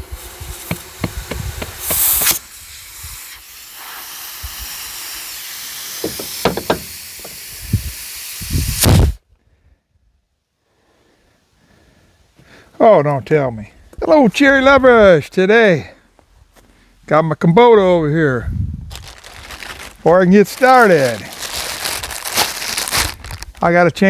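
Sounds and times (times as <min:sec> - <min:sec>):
compressed air hissing: 0:00.0 - 0:09.2
knocks and clicks: 0:06.0 - 0:07.4.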